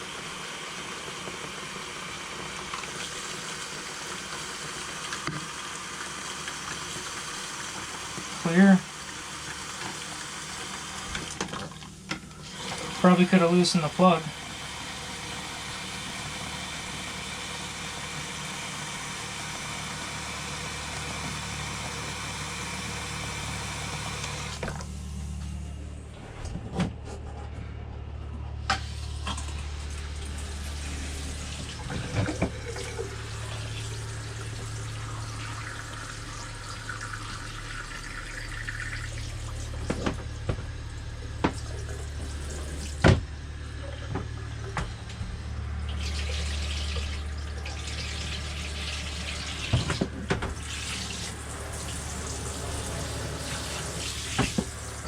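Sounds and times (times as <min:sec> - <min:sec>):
water running hard from tap: 0:00.0 - 0:24.8, 0:28.8 - 0:43.2, 0:45.9 - 0:55.0
low steady hum: 0:24.5 - 0:55.0.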